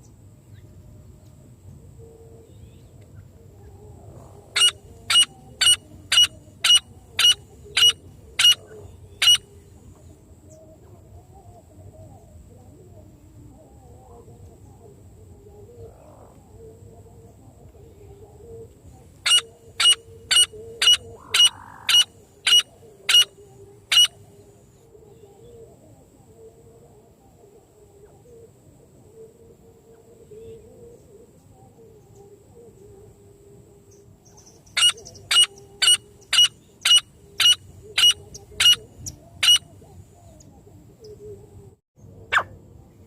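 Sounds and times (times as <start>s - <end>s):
francolin call notes: 18.5s - 24.3s.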